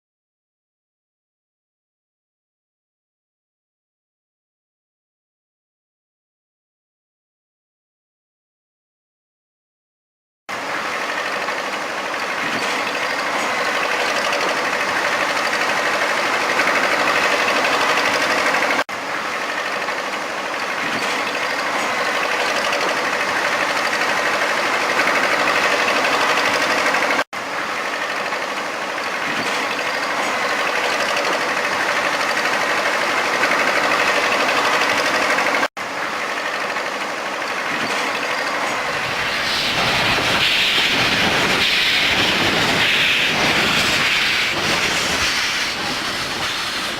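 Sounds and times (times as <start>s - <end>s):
machine running noise: 10.5s - 46.9s.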